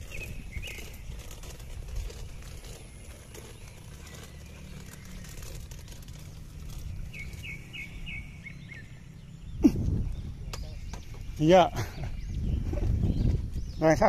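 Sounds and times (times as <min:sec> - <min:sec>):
bird chirping: 0:00.0 - 0:14.0.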